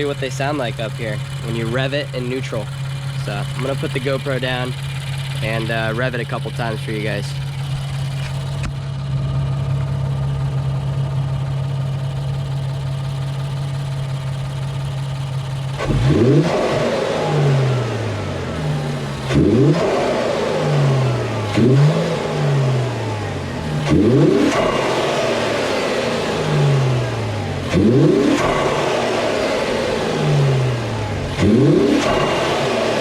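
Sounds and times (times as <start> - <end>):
car engine idling and revving: 0.0 - 33.0.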